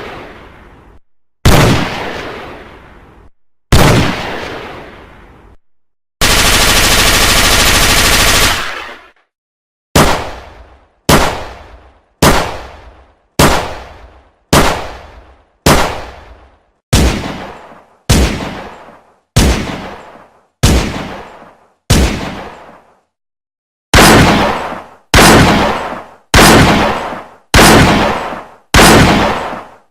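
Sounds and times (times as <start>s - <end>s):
single gunshots with echo: 1.5s - 2.6s, 10.0s - 16.4s, 17.0s - 22.8s, 24.0s - 29.8s
automatic gunfire burst: 6.2s - 8.9s.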